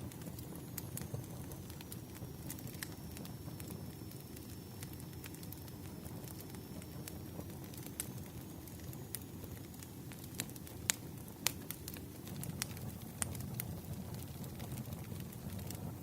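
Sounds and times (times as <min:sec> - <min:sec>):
campfire crackling and popping: 0:00.0 - 0:16.0
low fire rumble: 0:00.0 - 0:16.0.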